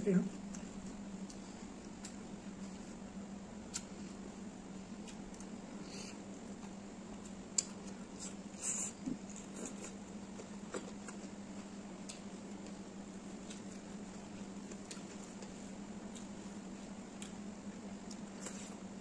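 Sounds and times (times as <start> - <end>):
steady low hum: 0.0 - 19.0
chewing and mouth smacks: 3.7 - 4.0.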